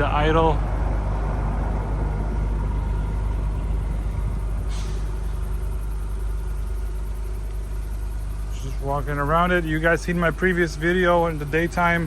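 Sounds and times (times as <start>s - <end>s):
car engine idling: 0.0s - 12.0s
short hiss: 4.7s - 5.3s.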